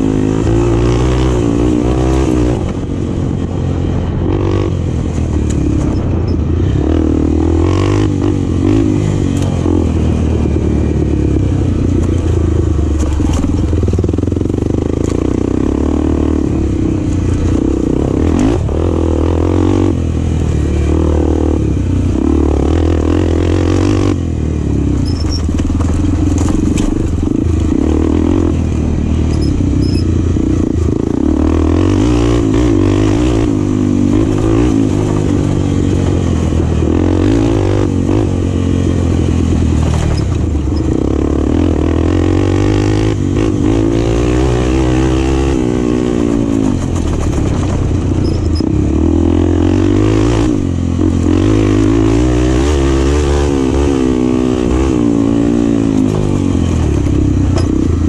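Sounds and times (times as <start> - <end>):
motorcycle engine revving: 0.0 - 58.0
clatter over rough ground: 4.9 - 6.6, 10.4 - 15.6, 24.9 - 53.9, 54.6 - 58.0.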